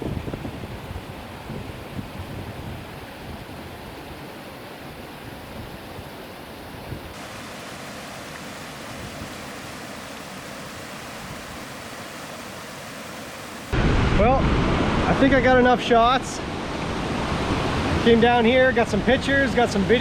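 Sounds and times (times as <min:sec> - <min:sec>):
waterfall rushing: 0:07.1 - 0:20.0.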